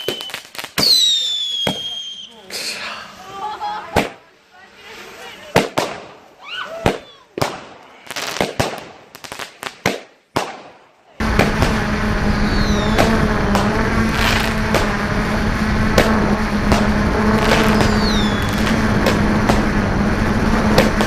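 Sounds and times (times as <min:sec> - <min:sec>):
fireworks and firecrackers banging: 0:00.0 - 0:02.5, 0:03.4 - 0:21.0
falling firework whistles: 0:00.0 - 0:02.6, 0:11.2 - 0:21.0
drone propellers humming: 0:11.2 - 0:21.0.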